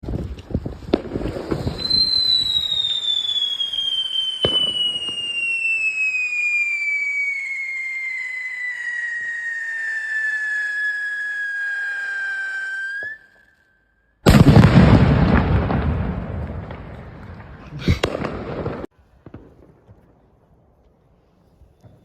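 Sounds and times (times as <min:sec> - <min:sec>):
firecracker bangs and crackles: 0:00.0 - 0:13.2, 0:14.2 - 0:20.2
falling firework whistle: 0:00.4 - 0:18.9
sharp firework bang: 0:14.3 - 0:18.9.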